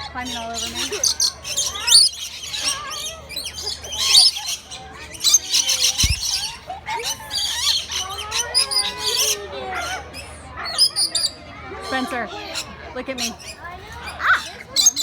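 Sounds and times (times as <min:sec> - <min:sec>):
flock of birds chirping and squawking: 0:00.0 - 0:15.0
low bump: 0:06.0 - 0:06.6.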